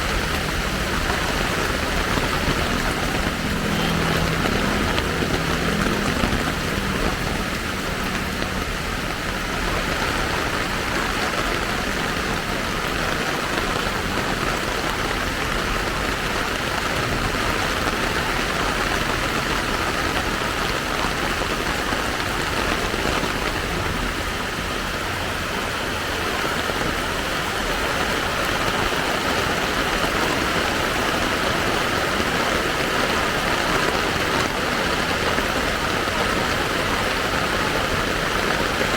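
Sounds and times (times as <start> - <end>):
passing vehicle engine hum: 0.0 - 26.3
steady rain falling: 0.0 - 38.9.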